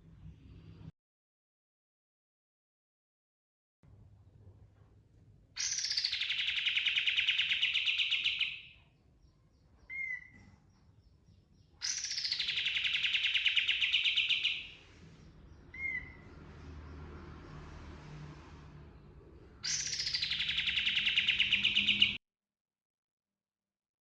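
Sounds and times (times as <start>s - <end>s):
bird singing rolling trill: 5.6s - 17.3s, 19.4s - 22.2s.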